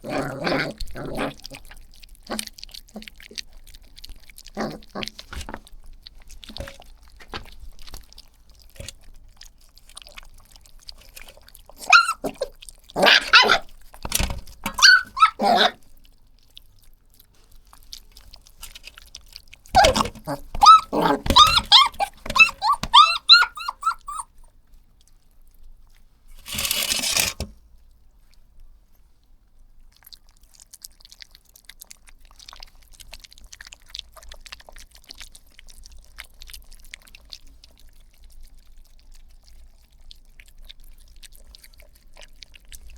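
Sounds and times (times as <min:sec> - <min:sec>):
puppies yipping and barking: 0:11.8 - 0:15.8, 0:19.8 - 0:24.4, 0:26.5 - 0:27.4.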